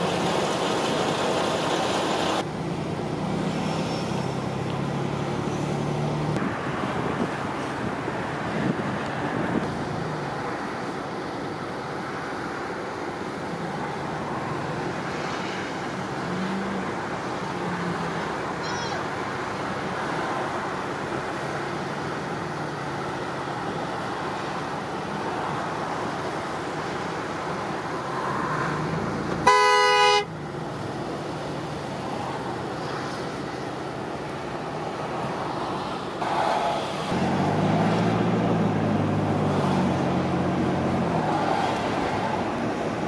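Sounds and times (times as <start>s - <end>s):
heavy engine drone: 0.0s - 6.1s
road traffic noise: 0.0s - 43.0s
vehicle horn honk: 29.4s - 30.3s.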